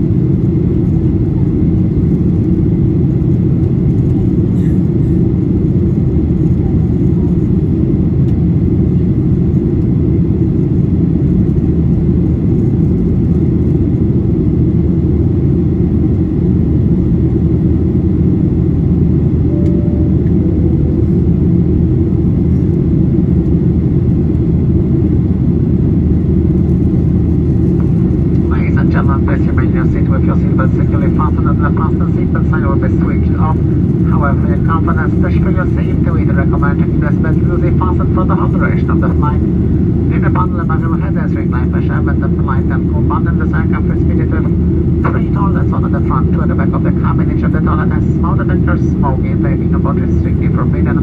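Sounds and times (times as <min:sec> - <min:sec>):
jet engines in cabin: 0:00.0 - 0:51.0.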